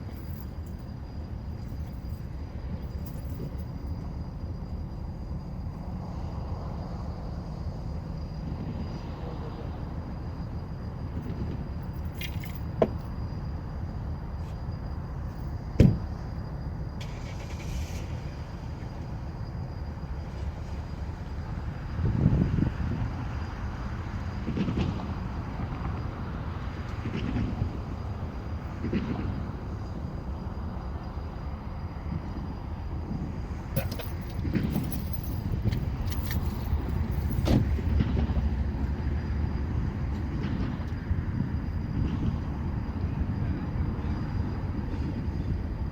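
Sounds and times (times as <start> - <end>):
diesel locomotive rumbling: 0.0 - 45.9
sharp knocks: 15.8 - 16.1
short hiss: 17.0 - 18.3
locomotive engine rumbling: 23.8 - 45.9.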